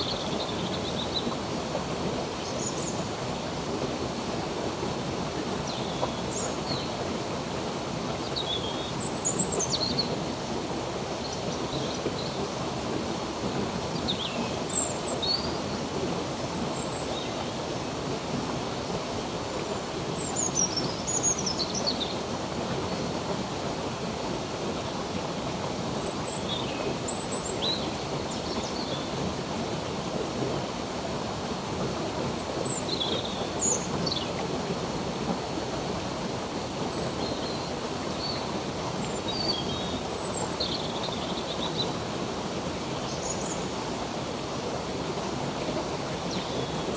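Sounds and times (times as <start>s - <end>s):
stream water flowing: 0.0s - 46.9s.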